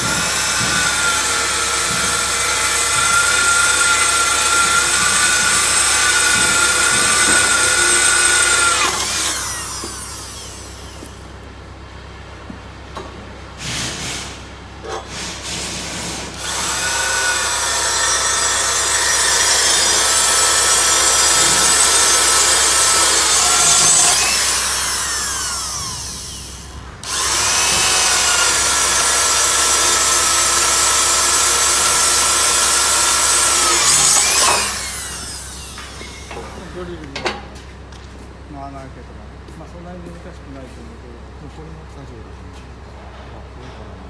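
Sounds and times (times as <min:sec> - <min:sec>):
power tool whining: 0:00.0 - 0:11.3, 0:16.3 - 0:36.9.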